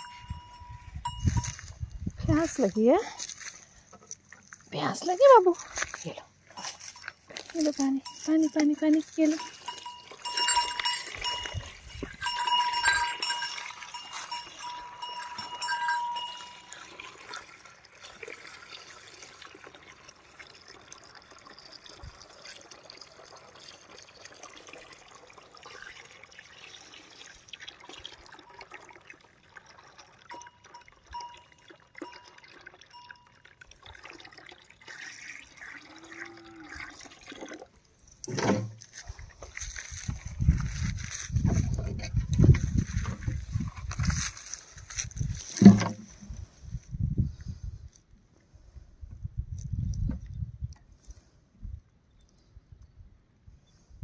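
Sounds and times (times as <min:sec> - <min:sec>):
bell ringing: 0:00.0 - 0:01.7, 0:08.0 - 0:16.8
horse slurping water: 0:16.3 - 0:40.8.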